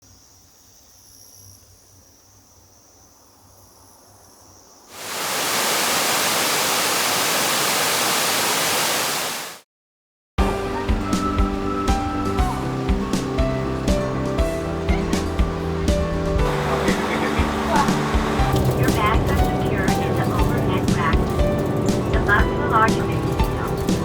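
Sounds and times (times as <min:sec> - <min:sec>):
faint insect calls: 0:00.0 - 0:09.1
waterfall rushing: 0:04.9 - 0:09.6, 0:12.4 - 0:24.0.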